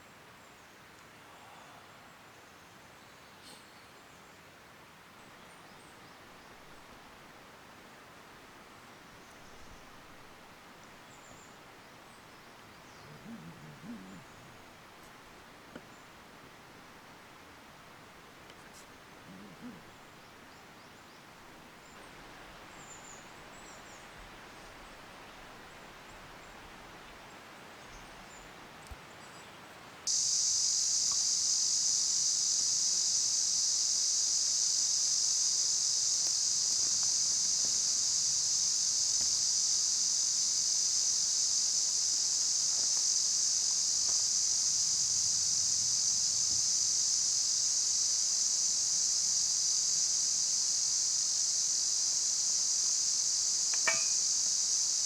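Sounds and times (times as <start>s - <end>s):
high-pitched insect chorus: 21.7s - 26.5s, 30.1s - 55.0s.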